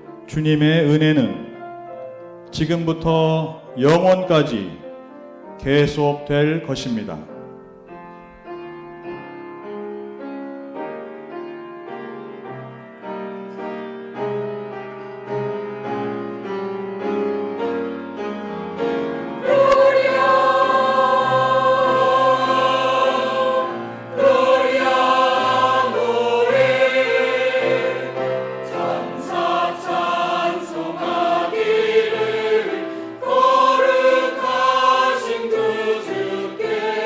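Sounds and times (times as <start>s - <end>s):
piano accompaniment: 0.0s - 37.0s
choir singing: 18.9s - 37.0s.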